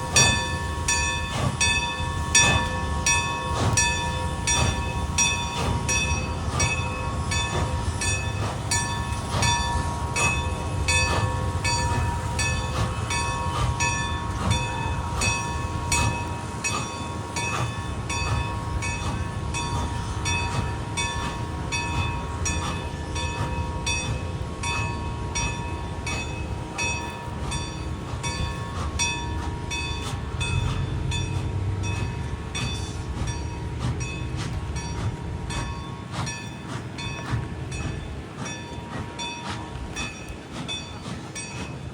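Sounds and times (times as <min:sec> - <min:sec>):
regular rail clicking: 0:00.0 - 0:41.9
train rumbling past: 0:00.0 - 0:41.9.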